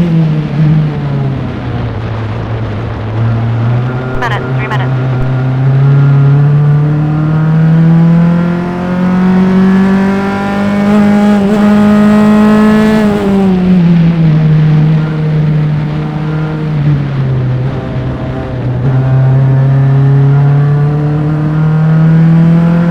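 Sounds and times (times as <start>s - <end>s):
race car engine: 4.9s - 22.9s.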